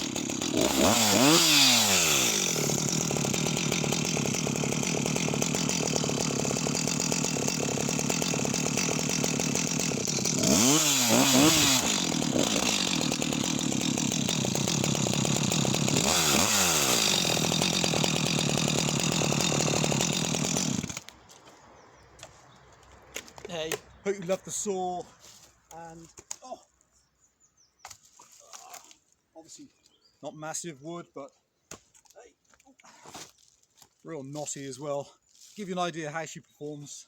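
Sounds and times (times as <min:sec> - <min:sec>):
chainsaw cutting wood: 0:00.0 - 0:21.2.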